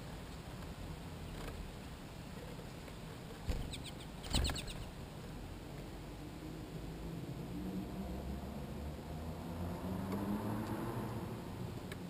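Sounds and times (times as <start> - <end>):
short high bird chirps: 3.5 - 4.9.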